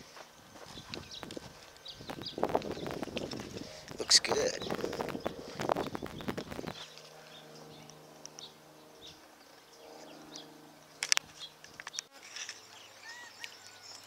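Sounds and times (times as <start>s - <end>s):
steady low hum: 0.0s - 14.0s
arched bird calls: 0.6s - 14.0s
bird chirps: 0.7s - 10.6s, 11.3s - 14.0s.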